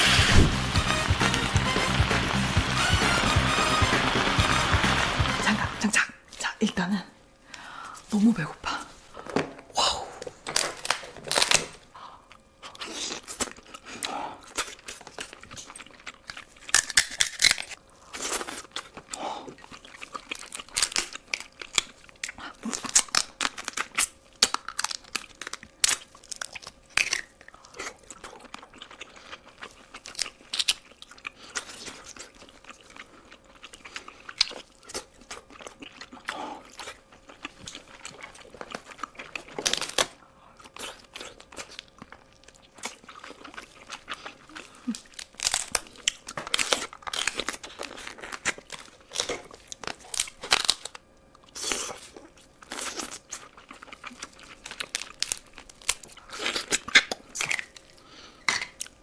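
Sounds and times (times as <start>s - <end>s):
sharp crackles: 0.0s - 6.0s
person crunching and chewing: 12.6s - 59.0s.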